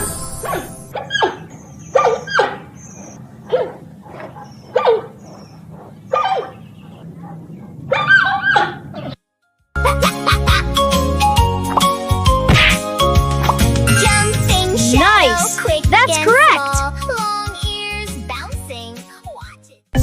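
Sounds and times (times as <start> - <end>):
dog barking: 0.4 - 9.2.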